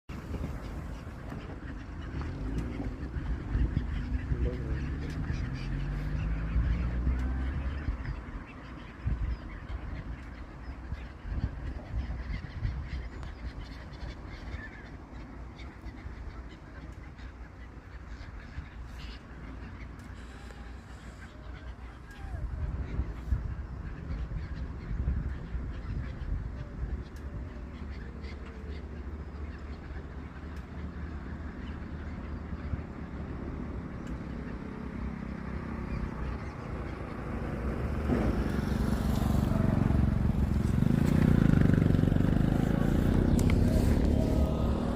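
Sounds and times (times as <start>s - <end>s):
gulls calling: 0.1s - 44.9s
steady low rumble: 0.1s - 44.9s
engine running: 26.9s - 44.9s.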